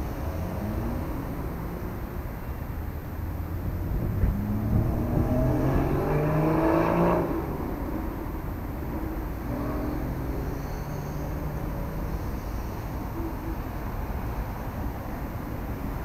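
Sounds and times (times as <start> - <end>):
vehicle engine accelerating: 3.4 - 12.1.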